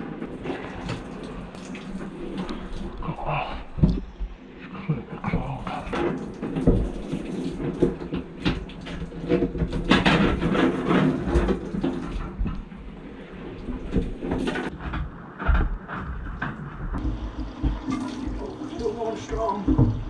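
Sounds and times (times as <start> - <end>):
water splashing and pouring: 0.0 - 4.2, 5.5 - 14.7, 17.0 - 20.0
heavy rain: 0.0 - 14.8, 17.0 - 20.0
knocks and clatter: 5.4 - 18.6.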